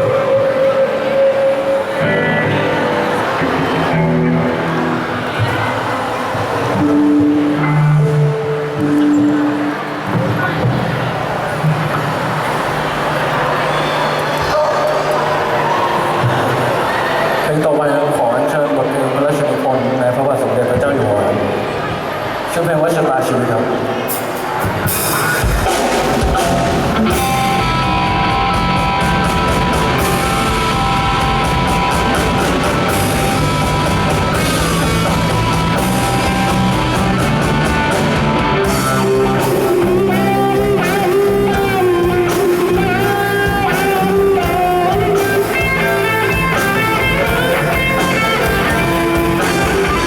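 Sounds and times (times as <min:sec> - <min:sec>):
rock band playing: 0:00.0 - 0:11.6, 0:24.1 - 0:50.0
wavering lead melody: 0:26.4 - 0:50.0.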